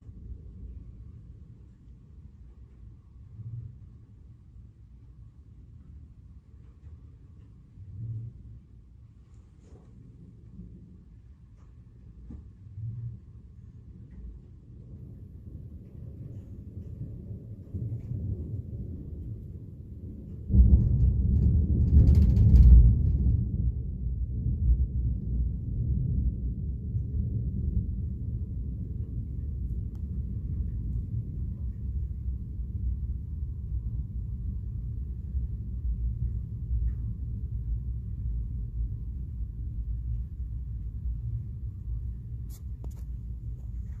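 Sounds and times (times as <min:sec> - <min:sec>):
thunder rumbling: 0:09.9 - 0:44.0.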